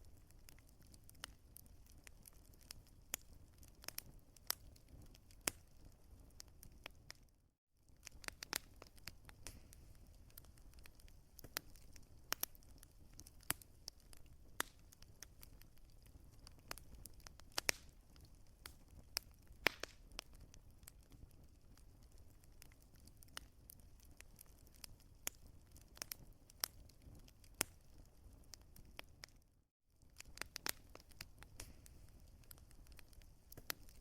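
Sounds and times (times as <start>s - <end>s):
wood fire crackling: 0.0s - 29.4s, 30.0s - 34.0s.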